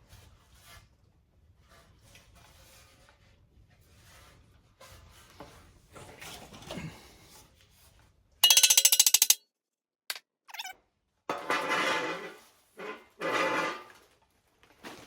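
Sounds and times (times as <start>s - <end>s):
metal hardware clinking: 8.4s - 9.4s
rapid metallic rattle: 8.4s - 9.4s.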